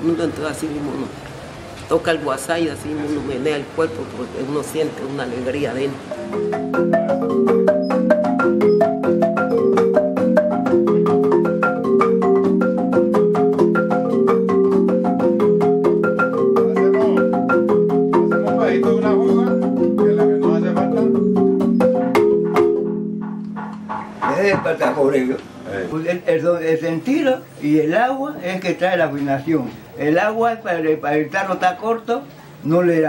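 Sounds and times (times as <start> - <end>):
marimba playing fast pattern: 4.8 - 29.2, 29.9 - 33.0
sharp percussion strokes: 6.1 - 26.5.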